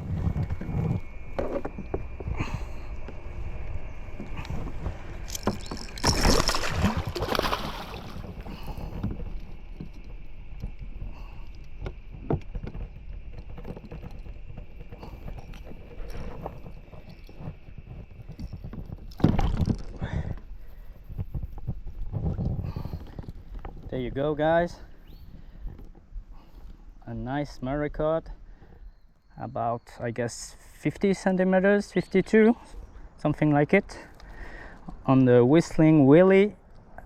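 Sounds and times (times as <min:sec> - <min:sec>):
water splashing against kayak: 0:04.2 - 0:20.2.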